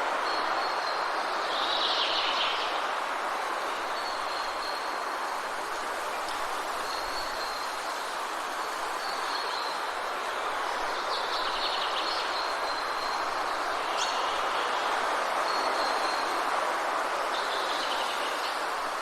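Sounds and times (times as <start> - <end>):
rain falling in forest: 0.0 - 19.0
small birds whistling and trilling: 10.7 - 14.9.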